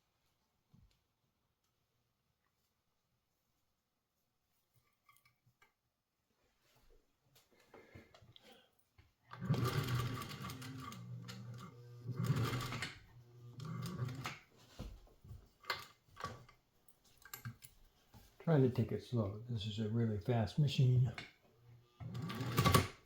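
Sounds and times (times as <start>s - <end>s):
sewing machine stitching: 9.3s - 14.5s, 22.0s - 23.0s.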